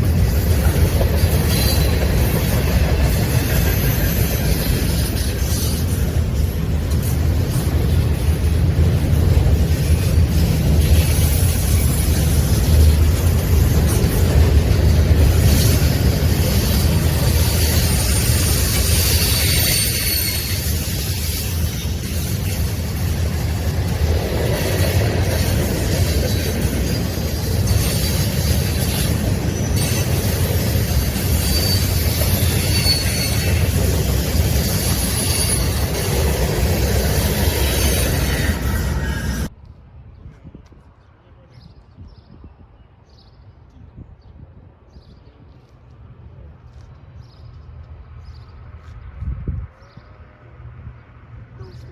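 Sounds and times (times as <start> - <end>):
train rumbling past: 0.0 - 41.4, 42.6 - 51.9
high wheel squeals: 1.2 - 6.1, 15.4 - 22.7, 26.3 - 39.5.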